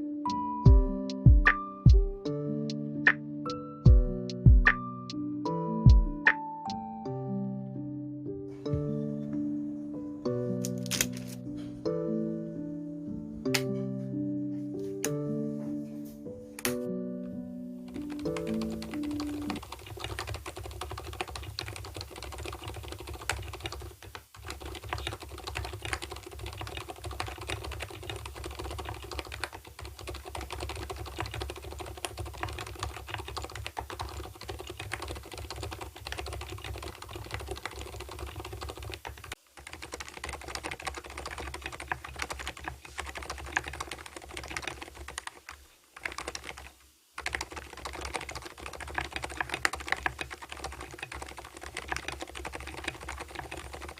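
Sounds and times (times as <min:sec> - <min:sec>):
fast typing on keyboard: 0:17.9 - 0:53.9.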